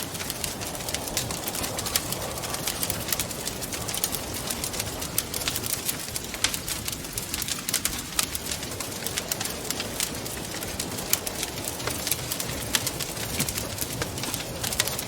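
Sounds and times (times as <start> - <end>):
wind rushing: 0.0 - 7.2
wood fire crackling: 0.0 - 15.0.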